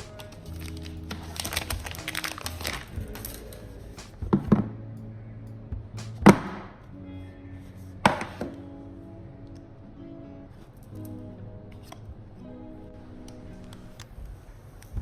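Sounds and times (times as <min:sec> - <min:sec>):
box packaging rustling: 0:00.0 - 0:03.7
background music: 0:00.0 - 0:15.0.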